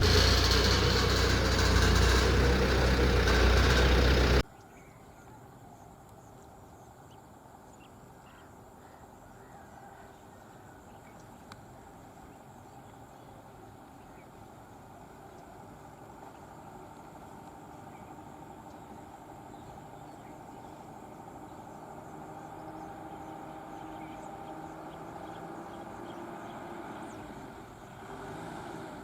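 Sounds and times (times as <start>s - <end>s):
diesel engine running: 0.0s - 4.4s.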